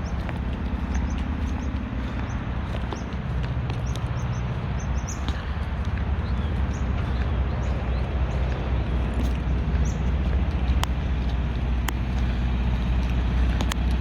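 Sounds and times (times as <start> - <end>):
footsteps on hard surface: 0.0 - 14.0
truck diesel engine idling: 0.0 - 14.0.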